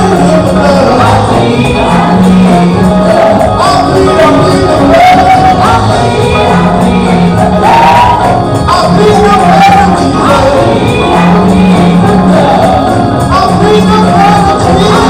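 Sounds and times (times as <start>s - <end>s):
lead voice singing: 0.0s - 15.0s
live gospel music with band: 0.0s - 15.0s
people shouting: 7.6s - 8.4s.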